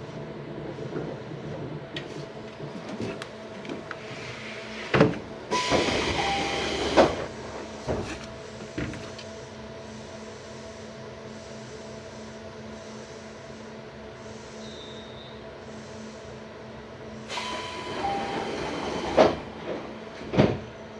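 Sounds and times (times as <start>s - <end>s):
train equipment hum: 0.0s - 20.9s
loud air hiss: 17.3s - 19.2s.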